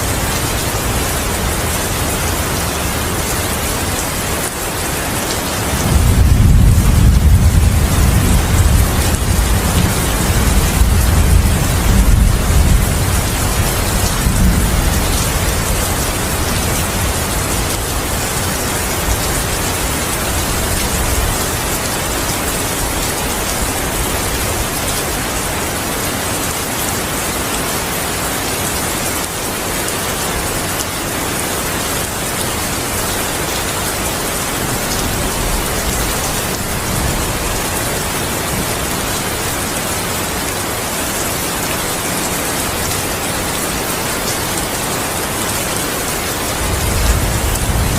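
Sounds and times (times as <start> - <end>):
heavy rain falling: 0.0 - 47.9
low thunder rumble: 5.8 - 21.4, 46.6 - 47.9.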